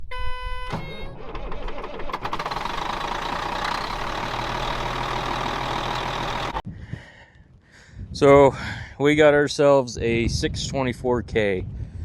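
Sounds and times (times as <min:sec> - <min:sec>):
diesel engine running: 0:00.6 - 0:06.6.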